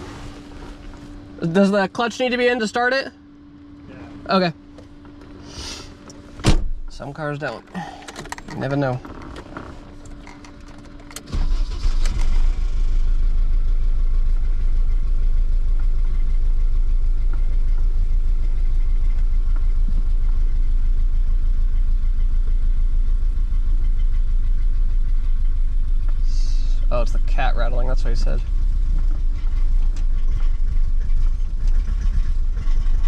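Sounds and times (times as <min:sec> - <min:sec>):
car engine starting and idling: 0:00.0 - 0:33.0
rattle at idle: 0:07.6 - 0:33.0.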